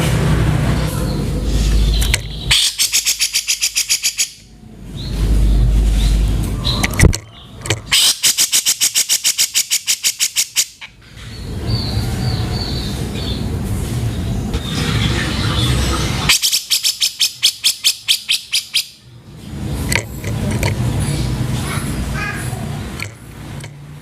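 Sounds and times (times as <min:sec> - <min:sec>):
bulbul calling harsh rapid notes: 0:01.1 - 0:04.5, 0:14.7 - 0:19.0.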